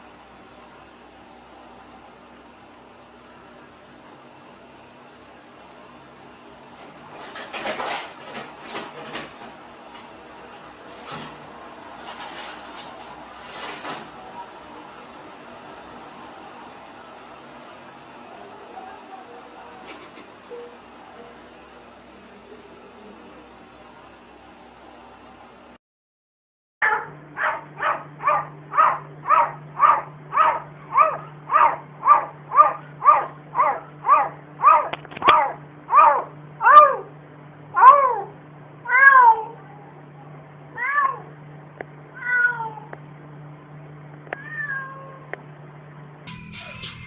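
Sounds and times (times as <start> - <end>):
cat meowing: 37.8 - 39.7, 40.7 - 41.3, 42.2 - 42.9, 44.4 - 45.3.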